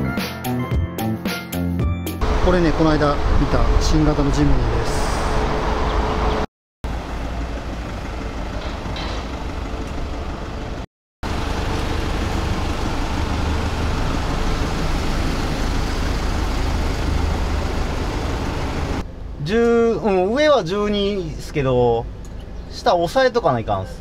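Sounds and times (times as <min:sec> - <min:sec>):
vehicle engines idling: 0:02.2 - 0:24.0.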